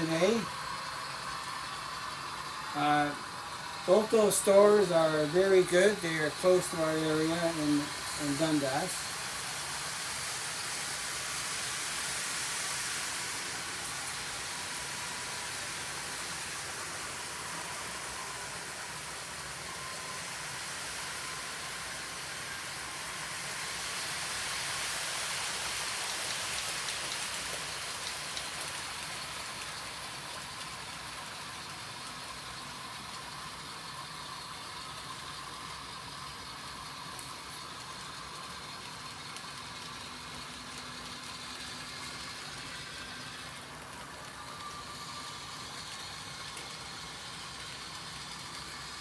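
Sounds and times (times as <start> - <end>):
faint steady whine: 0.0 - 49.0
model train running: 0.0 - 49.0.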